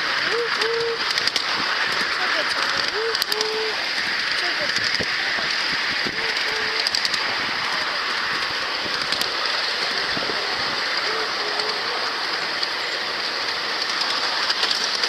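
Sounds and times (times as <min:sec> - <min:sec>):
train wheels rolling on rails: 0:00.0 - 0:15.0.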